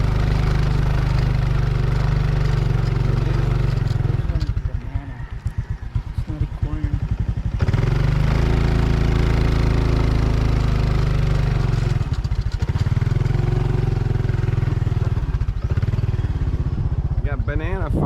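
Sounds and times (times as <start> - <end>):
small motorcycle engine running: 0.0 - 18.0.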